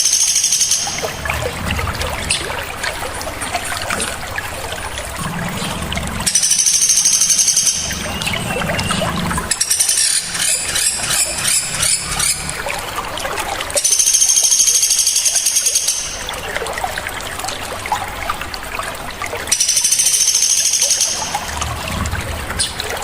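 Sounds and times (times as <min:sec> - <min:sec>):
songbird calls: 0:05.3 - 0:12.5, 0:19.5 - 0:21.5
high-pitched bird trill: 0:06.3 - 0:12.4, 0:19.5 - 0:21.4.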